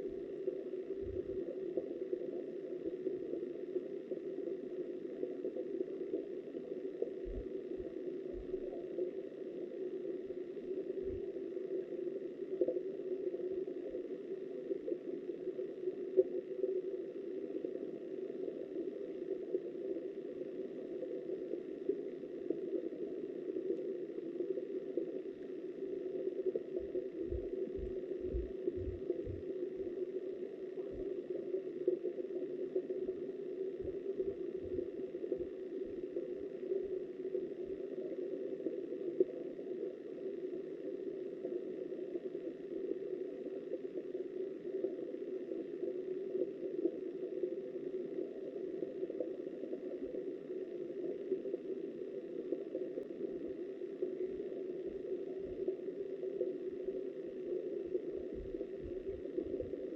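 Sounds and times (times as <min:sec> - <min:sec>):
muffled river water underwater: 0:00.0 - 0:59.9
dull low thumps: 0:26.8 - 0:29.5, 0:33.8 - 0:34.8.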